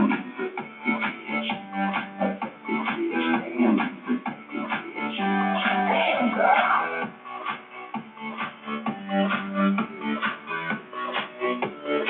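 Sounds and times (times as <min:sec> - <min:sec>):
plucked-string music with beat: 0:07.0 - 0:12.0.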